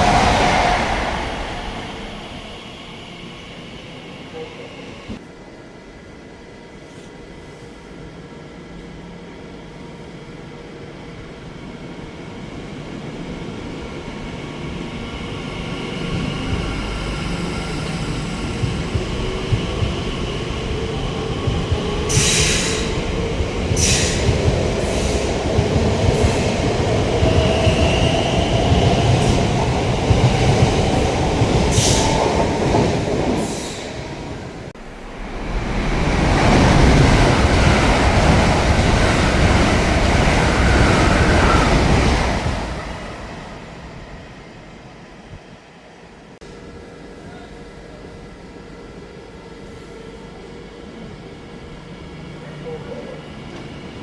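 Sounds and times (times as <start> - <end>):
loud rush of noise: 0.0 - 3.5
electric train rumble: 0.0 - 6.6, 7.2 - 54.0.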